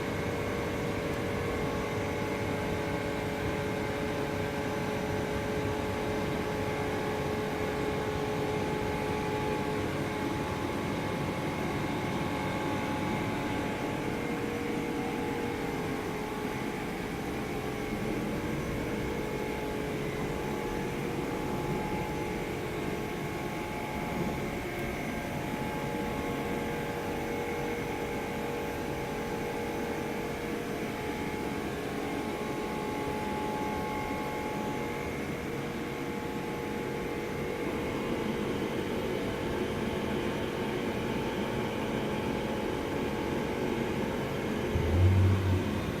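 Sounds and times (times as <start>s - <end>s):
small engine running steadily: 44.6s - 46.0s.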